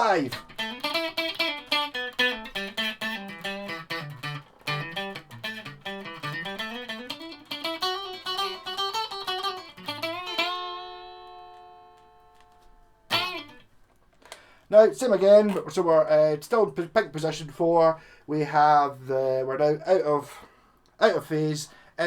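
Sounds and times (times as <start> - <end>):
electric guitar riff: 0.0 - 13.7
electric guitar chord ringing: 0.3 - 13.7.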